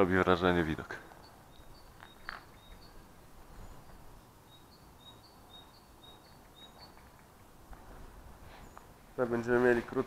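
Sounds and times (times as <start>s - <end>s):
bird chirping: 0.0s - 7.6s, 8.5s - 10.0s
faint outdoor background noise: 0.0s - 10.0s.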